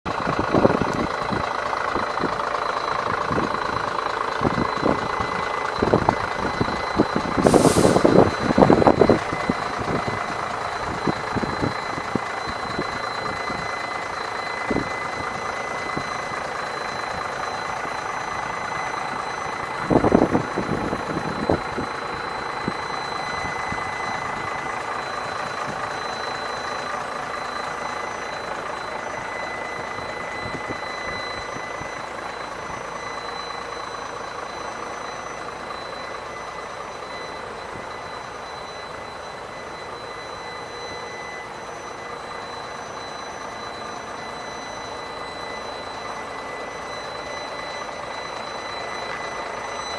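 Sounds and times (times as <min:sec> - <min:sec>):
diesel truck engine idling: 0:00.1 - 0:49.9
air hiss: 0:07.4 - 0:08.1.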